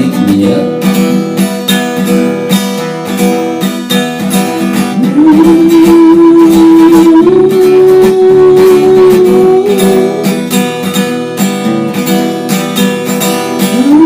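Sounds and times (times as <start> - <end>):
strummed acoustic guitar: 0.0 - 14.0
steady held note: 4.9 - 10.4.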